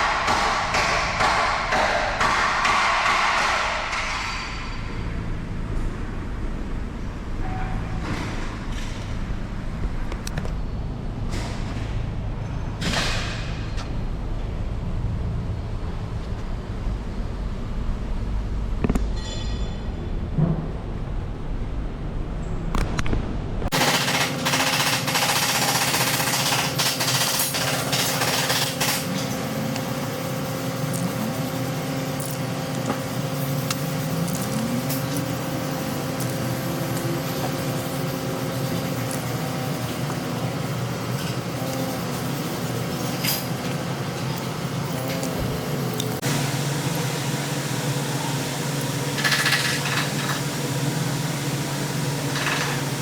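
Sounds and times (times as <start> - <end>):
steady mechanical hum: 0.0 - 53.0
power tool rattling: 23.7 - 29.4, 49.0 - 50.5, 52.2 - 53.0.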